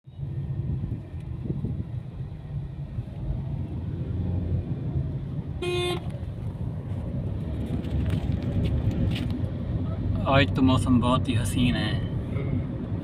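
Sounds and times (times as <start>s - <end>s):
car engine rumbling: 0.1s - 13.0s
car horn toot: 5.6s - 6.2s.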